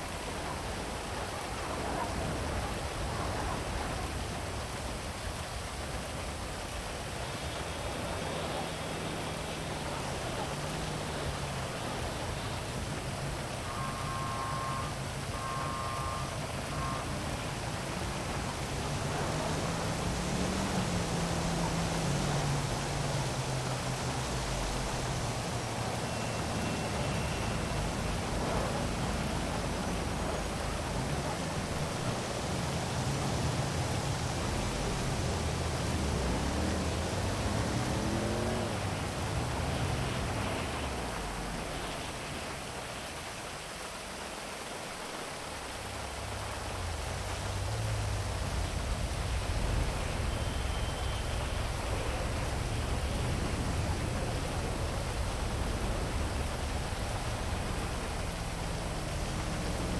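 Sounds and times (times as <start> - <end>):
city traffic rumble: 0.0 - 59.9
heavy rain hiss: 0.0 - 59.9.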